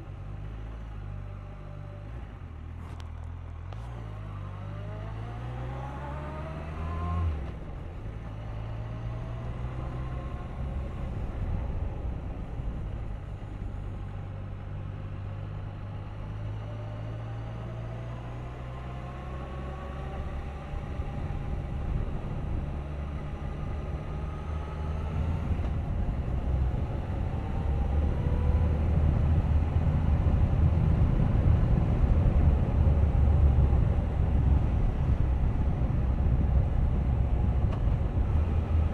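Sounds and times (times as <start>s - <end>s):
motorcycle engine accelerating: 2.9s - 12.0s
wind rumble on microphone: 5.1s - 16.2s, 17.5s - 38.9s.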